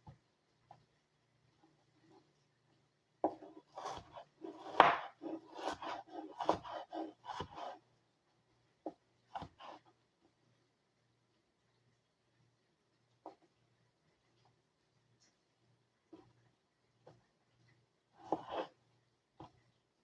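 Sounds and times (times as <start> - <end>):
knife chopping on cutting board: 3.2 - 7.7, 9.3 - 9.7, 18.2 - 18.7.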